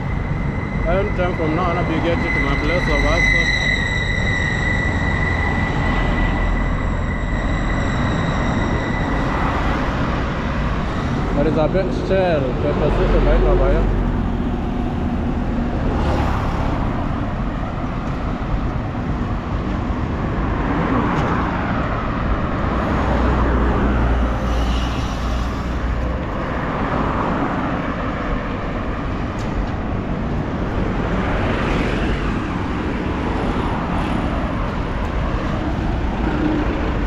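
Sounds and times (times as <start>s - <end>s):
road traffic rumble: 0.0s - 37.0s
vehicles passing: 0.0s - 37.0s.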